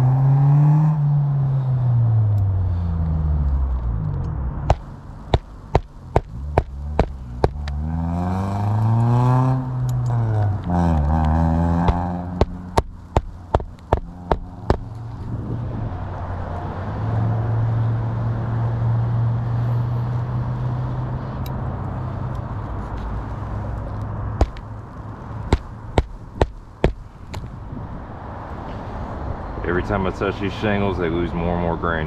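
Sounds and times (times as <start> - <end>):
low motor vehicle hum: 0.0 - 32.0
hatchet hammering roofing nails: 4.7 - 7.7, 11.8 - 14.9, 24.4 - 24.6, 25.5 - 27.0.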